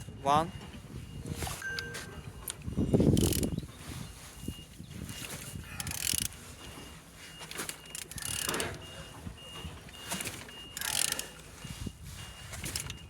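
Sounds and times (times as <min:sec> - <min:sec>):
engine clicking and ratcheting: 0:01.8 - 0:03.6, 0:05.3 - 0:06.8, 0:07.5 - 0:11.6.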